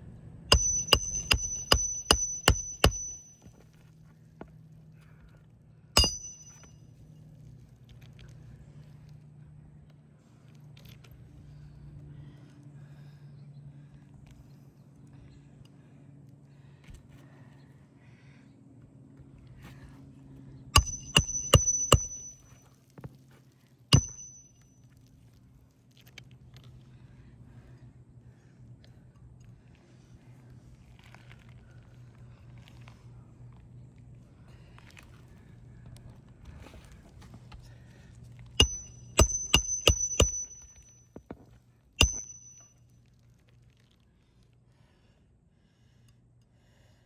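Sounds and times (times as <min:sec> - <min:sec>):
hammer striking metal: 0:00.5 - 0:03.5, 0:06.0 - 0:06.7, 0:20.8 - 0:22.5, 0:24.0 - 0:24.5, 0:38.6 - 0:40.9, 0:42.0 - 0:42.7.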